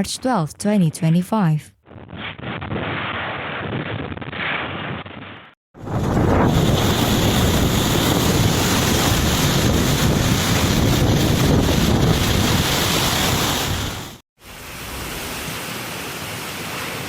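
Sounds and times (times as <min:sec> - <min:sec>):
strong storm wind on microphone: 0:05.8 - 0:14.1.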